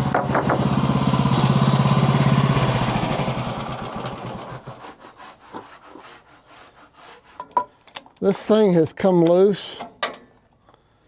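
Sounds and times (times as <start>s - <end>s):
engine running and winding down: 0.0s - 4.8s.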